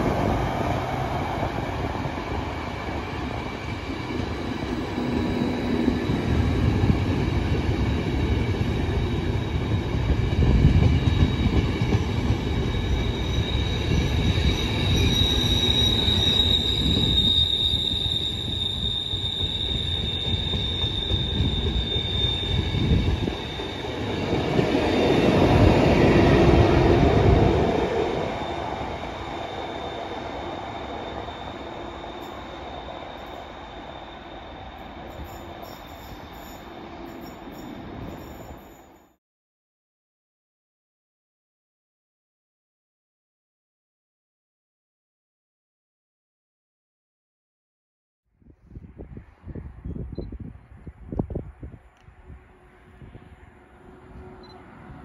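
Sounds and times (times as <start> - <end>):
high wheel squeal: 12.4 - 39.2.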